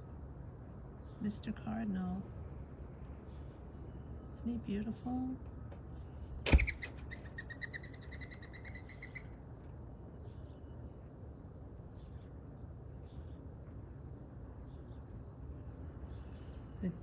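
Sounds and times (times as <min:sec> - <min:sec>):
bird chattering high calls: 0:06.5 - 0:09.3.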